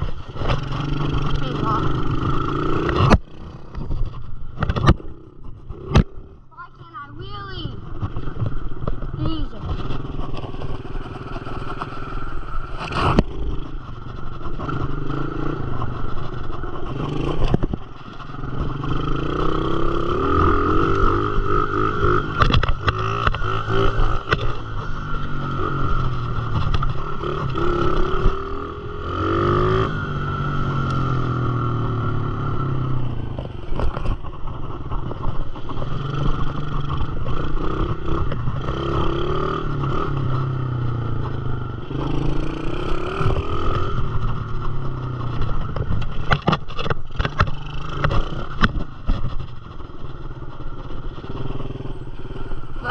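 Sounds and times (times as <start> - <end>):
dirt bike engine revving: 0.0 - 3.9, 4.7 - 34.0, 35.5 - 46.4
sharp knocks and clatter: 43.2 - 51.4.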